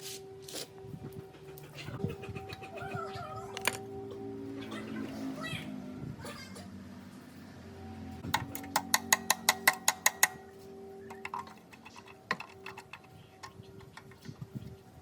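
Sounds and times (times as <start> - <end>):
sharp metallic taps: 8.3 - 10.5.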